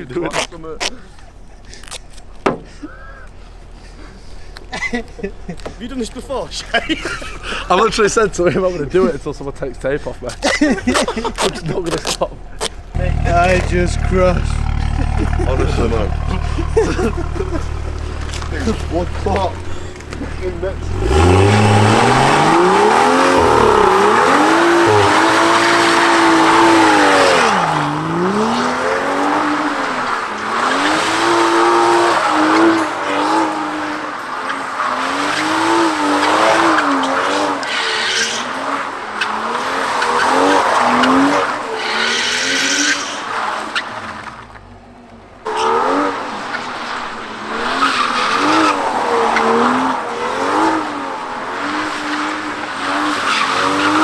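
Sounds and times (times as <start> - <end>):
tyres squealing: 10.3 - 44.0, 45.5 - 54.0
car engine revving hard: 12.6 - 43.2, 45.5 - 54.0.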